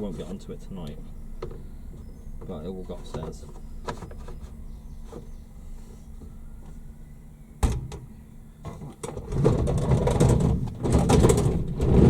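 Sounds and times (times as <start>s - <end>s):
low steady hum: 0.0s - 12.0s
dryer rumbling and scraping: 8.6s - 12.0s.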